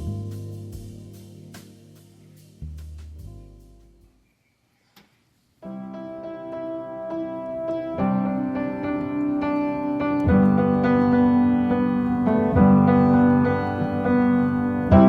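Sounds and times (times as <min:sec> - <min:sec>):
slow piano chords: 0:00.0 - 0:02.6, 0:05.6 - 0:15.0.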